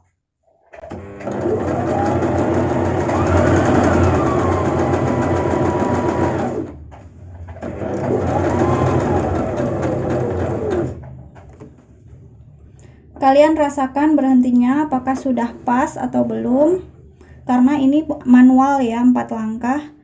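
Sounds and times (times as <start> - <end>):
sewing machine stitching: 0.7 - 11.7.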